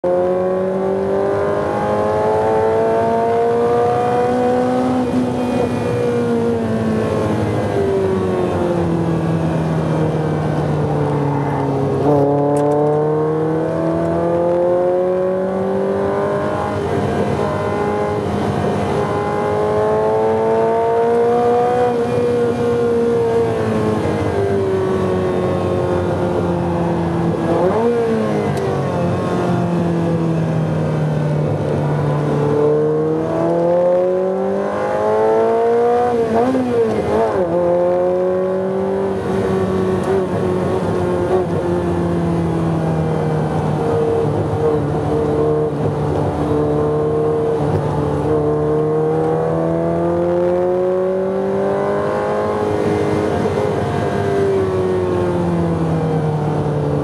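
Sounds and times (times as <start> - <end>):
car engine accelerating and braking: 0.0 - 57.0.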